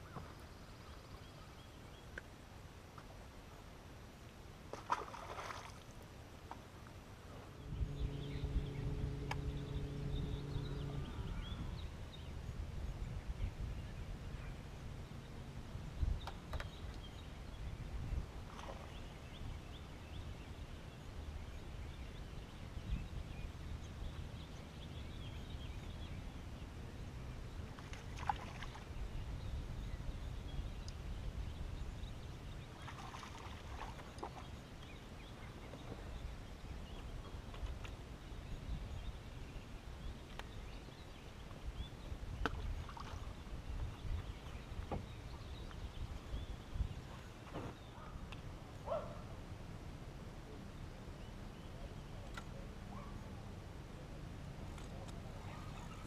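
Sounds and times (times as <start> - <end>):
wind and water rumbling: 0.0 - 56.0
steady hum: 7.0 - 13.3.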